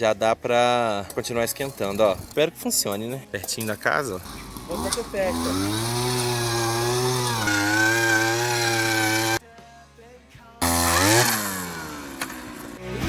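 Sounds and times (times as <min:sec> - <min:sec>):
small petrol engine running: 0:04.2 - 0:09.4, 0:10.6 - 0:12.8.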